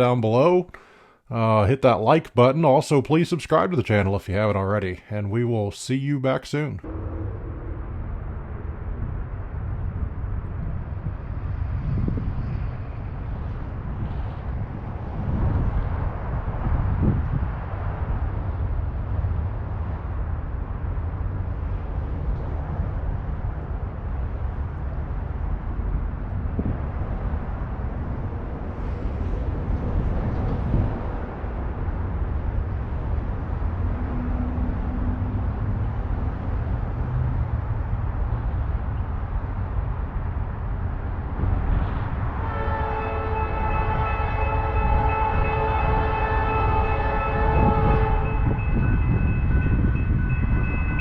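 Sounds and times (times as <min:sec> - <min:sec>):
diesel locomotive rumble: 0:06.8 - 0:51.0
locomotive air horn: 0:42.3 - 0:49.1.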